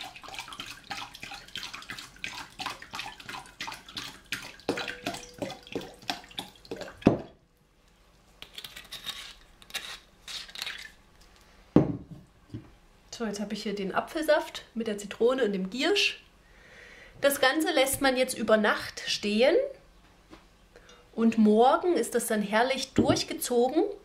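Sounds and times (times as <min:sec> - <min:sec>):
juice pouring and splashing: 0:00.0 - 0:07.4.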